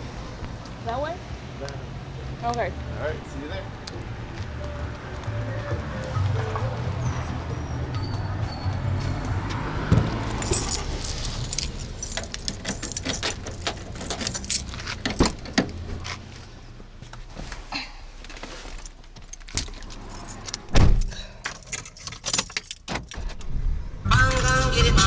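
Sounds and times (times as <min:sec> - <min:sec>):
car low hum: 0:00.0 - 0:25.0
keys jangling: 0:09.2 - 0:16.2, 0:18.2 - 0:25.0.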